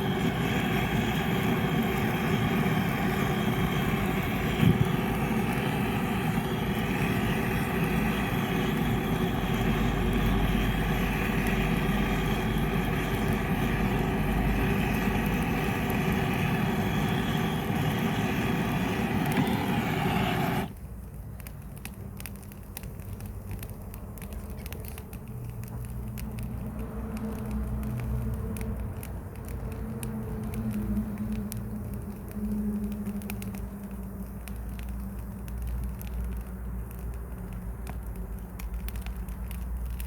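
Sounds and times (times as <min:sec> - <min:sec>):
loud steady roar: 0:00.0 - 0:20.8
low steady rumble: 0:00.0 - 0:40.0
wood fire crackling and popping: 0:00.0 - 0:40.0.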